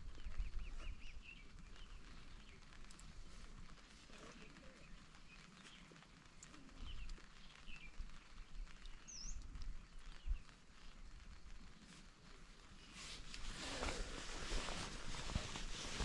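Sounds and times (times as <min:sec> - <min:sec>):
low outdoor background: 0:00.0 - 0:16.0
faint bird chirps: 0:04.1 - 0:10.9.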